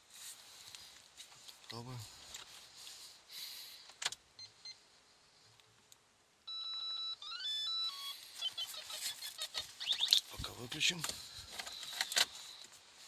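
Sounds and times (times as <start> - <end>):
dashboard beeps: 6.5 - 10.2.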